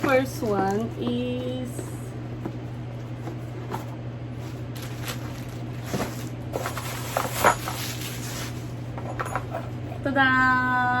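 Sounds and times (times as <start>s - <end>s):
steady low hum: 0.0s - 11.0s
packaging rustling: 3.4s - 8.9s.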